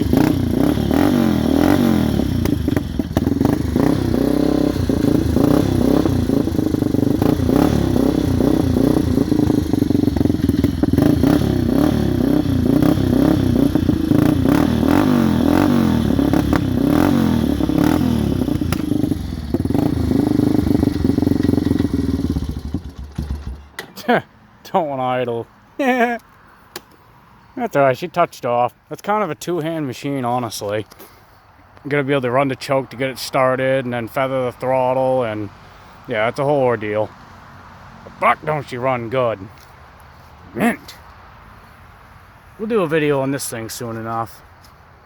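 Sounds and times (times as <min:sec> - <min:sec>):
atv engine revving: 0:00.0 - 0:24.2, 0:38.1 - 0:39.4, 0:40.6 - 0:41.0.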